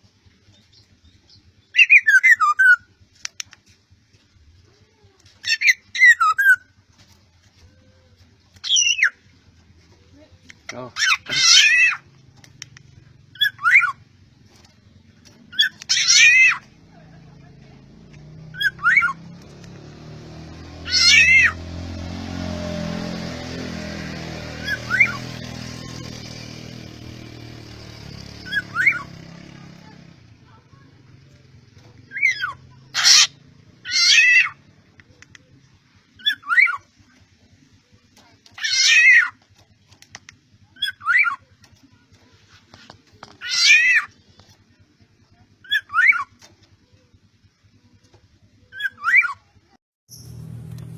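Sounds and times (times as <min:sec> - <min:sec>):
mewing animal calls: 0:04.6 - 0:19.4, 0:20.6 - 0:21.7, 0:28.2 - 0:35.6, 0:38.2 - 0:42.6, 0:43.2 - 0:44.6, 0:45.4 - 0:47.1.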